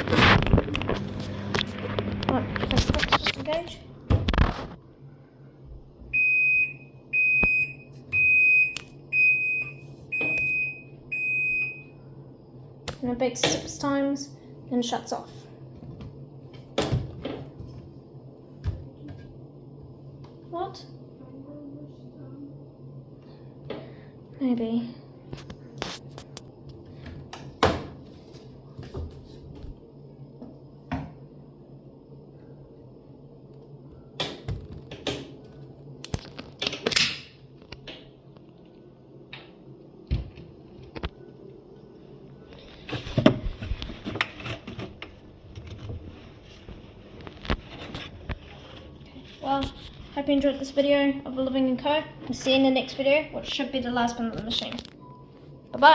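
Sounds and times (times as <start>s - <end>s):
steady low hum: 0.0s - 55.9s
washing machine beeping: 6.1s - 12.1s, 55.0s - 55.8s.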